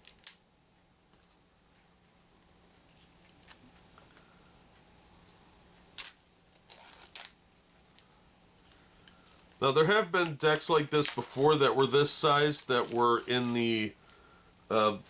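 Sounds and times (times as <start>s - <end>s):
plastic wrap crackling: 0.0s - 0.4s, 5.8s - 14.2s.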